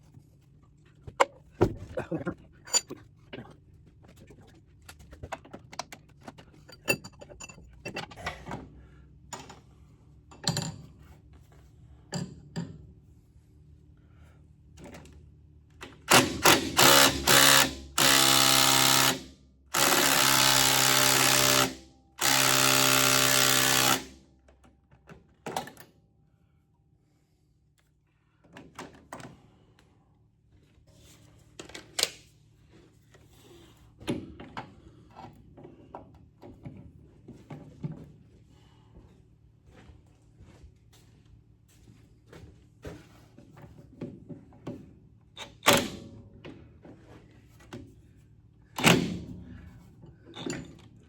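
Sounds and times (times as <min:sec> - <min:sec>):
metal tools clinking: 0:02.6 - 0:03.0, 0:06.5 - 0:08.2
power tool backing out bolts: 0:16.1 - 0:19.2, 0:19.8 - 0:24.1.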